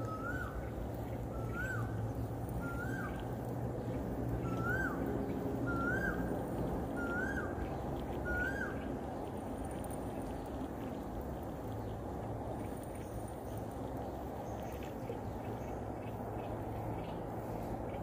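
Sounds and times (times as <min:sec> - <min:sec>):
bird whistling call: 0:00.0 - 0:00.7, 0:01.3 - 0:01.9, 0:02.6 - 0:03.3, 0:04.4 - 0:06.3, 0:07.0 - 0:07.6, 0:08.2 - 0:08.9
low background noise: 0:00.0 - 0:18.0.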